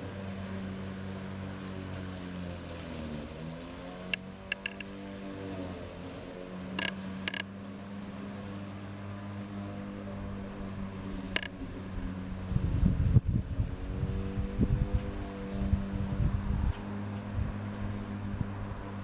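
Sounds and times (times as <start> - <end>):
electric motor humming: 0.0 - 16.4
sharp clicks and creaks: 4.1 - 4.9, 6.8 - 7.5, 11.3 - 11.5.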